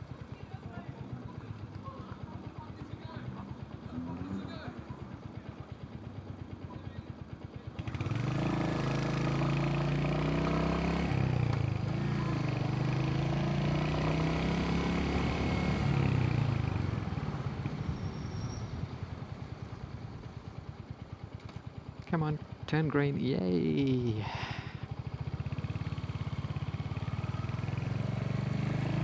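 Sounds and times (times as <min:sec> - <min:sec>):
motorcycle engine idling: 0:00.0 - 0:08.2, 0:18.8 - 0:28.3.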